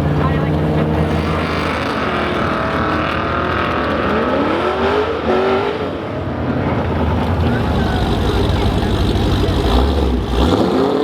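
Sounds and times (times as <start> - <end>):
racing car engines accelerating: 0.0 - 11.0.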